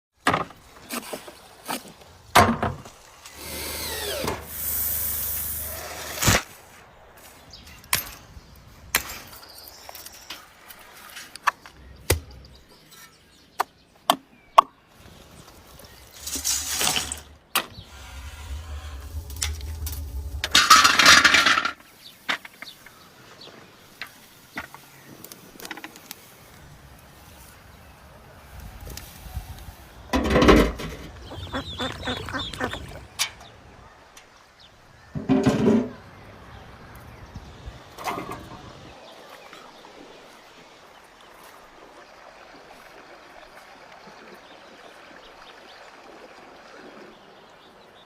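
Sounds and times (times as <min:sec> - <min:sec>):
hissing rushing bursts: 0:03.4 - 0:06.4, 0:17.7 - 0:21.1.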